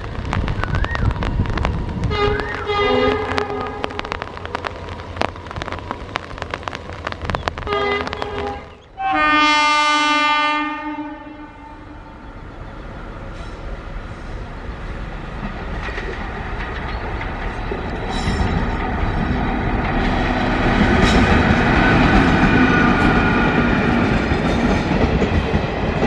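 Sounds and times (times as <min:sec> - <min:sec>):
train wheels clicking over rails: 0:00.0 - 0:08.9, 0:12.3 - 0:26.0
train rumble: 0:00.0 - 0:26.0
locomotive horn: 0:02.1 - 0:04.0, 0:07.6 - 0:12.3.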